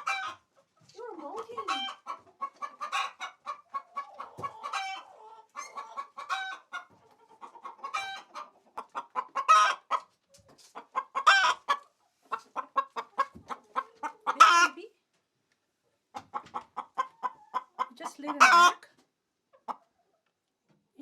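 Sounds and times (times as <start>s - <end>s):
hen cackling: 1.2s - 10.0s, 10.8s - 11.8s, 12.4s - 14.8s, 16.2s - 18.8s.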